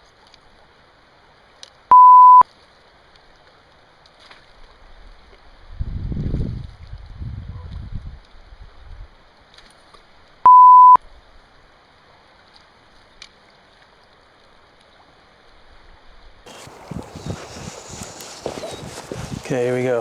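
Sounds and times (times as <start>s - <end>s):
pure bleep tone: 1.9s - 2.4s, 10.5s - 11.0s
flowing river water hiss: 16.5s - 20.0s.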